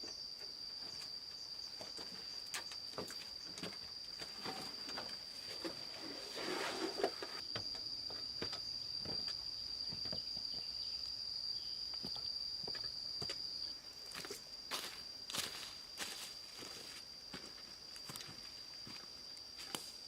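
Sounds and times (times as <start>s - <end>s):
insect trilling: 0.0s - 20.0s
rustle: 2.0s - 7.4s.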